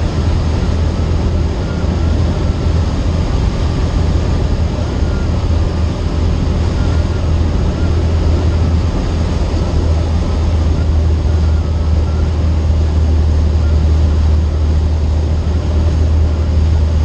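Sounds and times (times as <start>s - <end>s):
aircraft engine and propeller drone: 0.0s - 17.0s.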